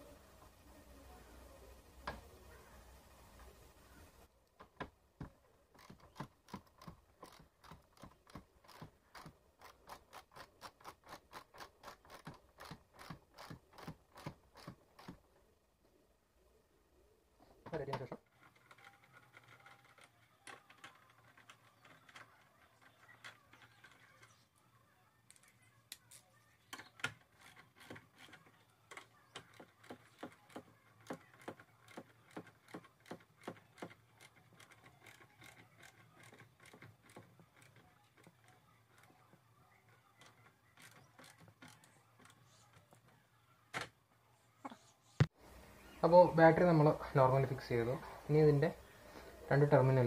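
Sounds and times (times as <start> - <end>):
scattered clicks and knocks: 4.5 - 15.3, 17.6 - 24.4, 26.7 - 44.0.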